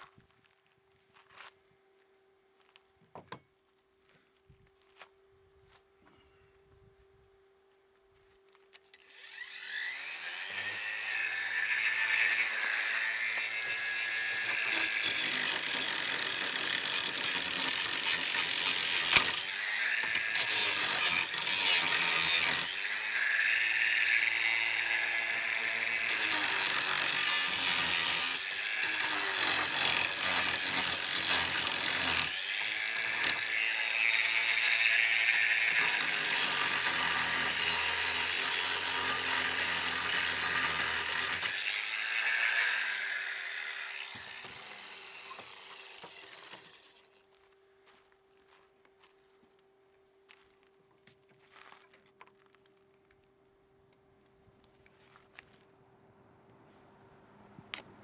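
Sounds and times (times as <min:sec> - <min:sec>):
power tool cutting wood: 0:09.0 - 0:47.2.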